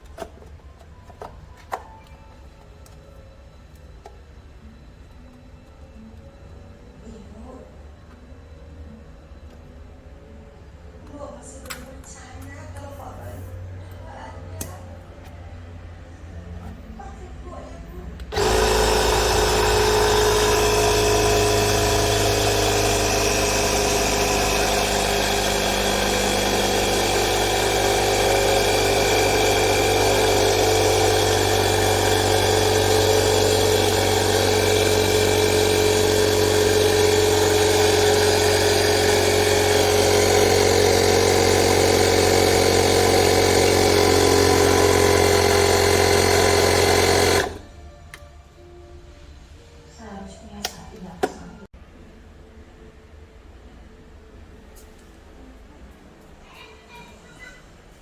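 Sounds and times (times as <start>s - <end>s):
air compressor buzzing hum: 18.3s - 47.8s.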